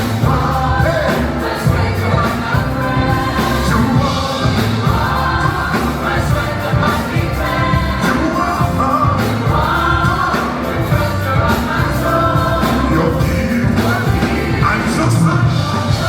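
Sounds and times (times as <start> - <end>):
band playing: 0.0 - 16.0
voices singing together: 0.0 - 16.0.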